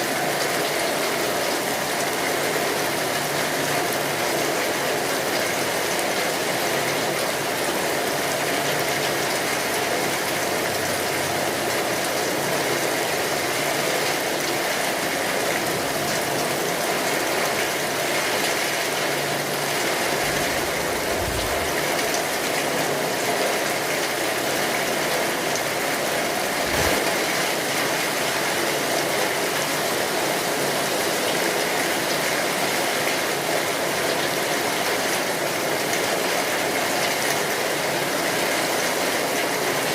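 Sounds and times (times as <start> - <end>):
steady rain falling: 0.0 - 39.9
low thumps: 20.3 - 22.1.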